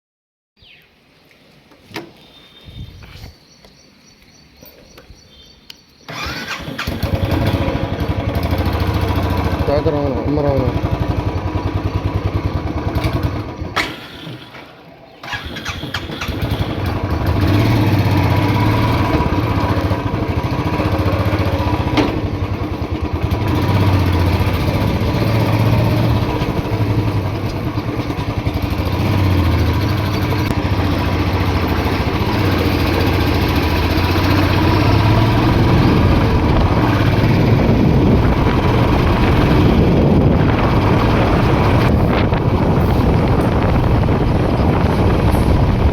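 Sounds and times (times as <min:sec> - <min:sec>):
motorcycle engine running: 0:06.2 - 0:13.9, 0:15.3 - 0:45.9.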